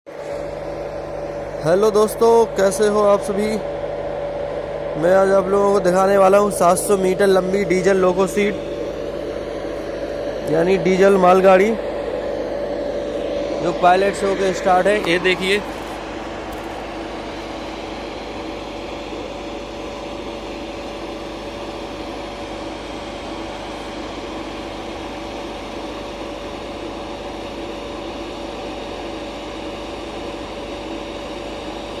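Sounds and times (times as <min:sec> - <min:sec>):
diesel locomotive engine humming: 0:00.1 - 0:32.0.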